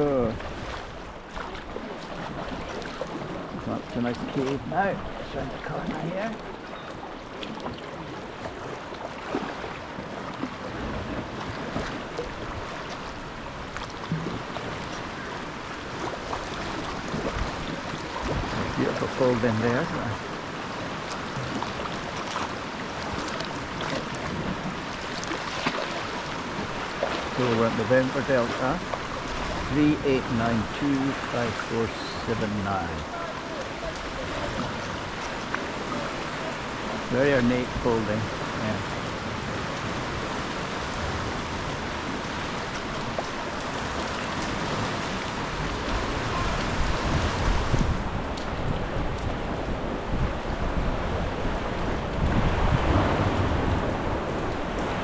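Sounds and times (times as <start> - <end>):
sea water lapping around kayak: 0.0 - 55.0
small splashes and drips: 0.3 - 15.1, 20.7 - 27.8.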